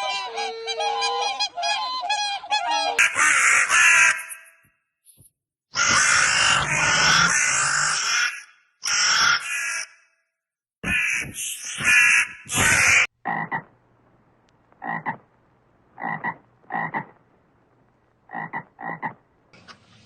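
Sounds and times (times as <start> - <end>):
loud harsh animal calls: 3.0 - 4.6, 5.7 - 10.1, 10.8 - 13.7
faint low hum: 13.2 - 20.0.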